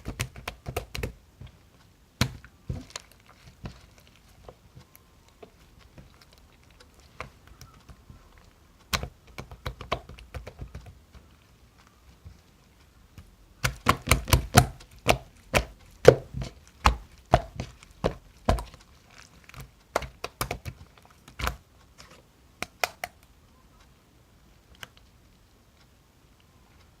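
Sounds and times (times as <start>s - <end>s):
sharp taps and knocks: 8.8s - 11.3s, 13.1s - 18.8s.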